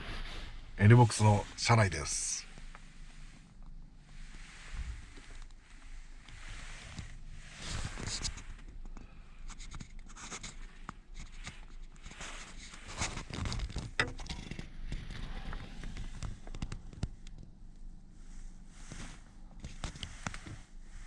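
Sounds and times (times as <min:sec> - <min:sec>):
objects scraping and knocking: 0:12.1 - 0:16.1.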